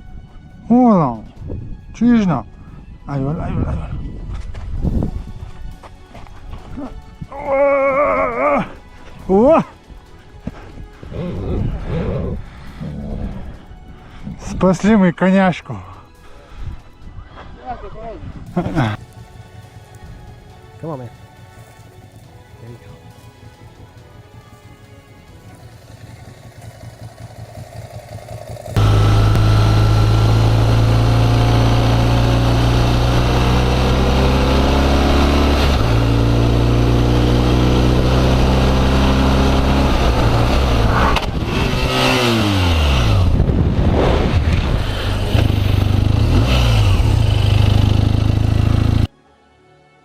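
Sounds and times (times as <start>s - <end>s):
motorcycle engine revving: 25.2s - 49.1s.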